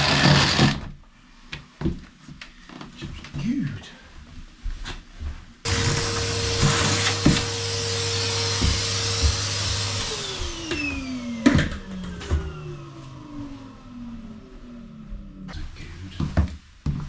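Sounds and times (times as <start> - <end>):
power tool motor spinning down: 0.0 - 0.8, 5.7 - 14.5.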